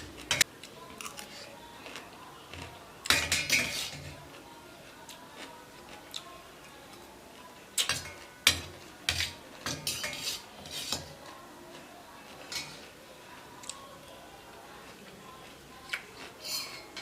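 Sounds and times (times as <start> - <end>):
cutlery clinking and scraping on a plate: 0.0 - 4.4, 7.7 - 13.0, 15.9 - 17.0.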